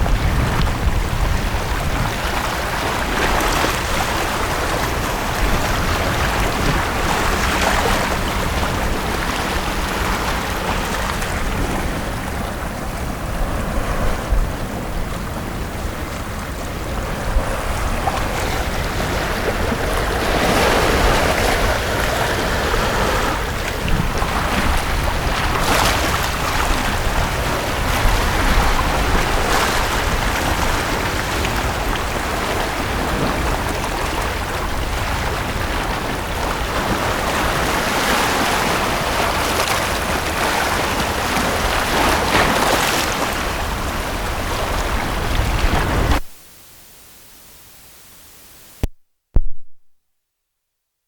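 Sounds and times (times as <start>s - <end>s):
sea waves washing onto beach: 0.0s - 46.3s
faint hiss: 46.2s - 48.9s.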